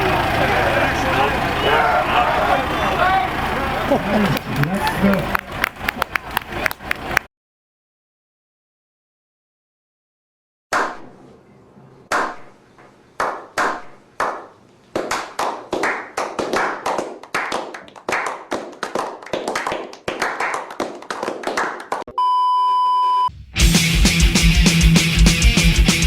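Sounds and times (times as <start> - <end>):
crowd clapping in rhythm: 3.8 - 7.3, 13.2 - 22.1
steady beep: 22.1 - 23.3
heavy metal music: 23.4 - 26.0.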